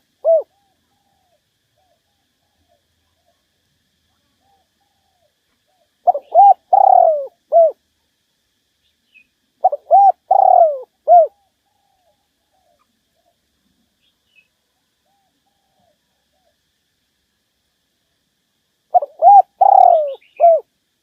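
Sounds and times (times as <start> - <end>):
dove cooing: 0.0 - 3.4, 4.4 - 7.8, 9.6 - 13.4, 18.9 - 20.7.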